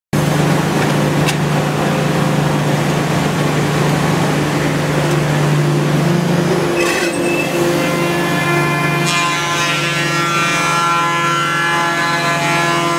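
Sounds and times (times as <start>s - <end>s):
wood router humming and hissing: 6.5s - 12.9s.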